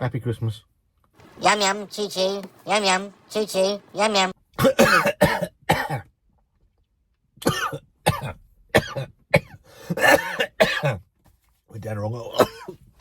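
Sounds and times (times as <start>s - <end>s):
man coughing: 4.6s - 6.1s, 7.4s - 11.0s, 12.2s - 12.8s.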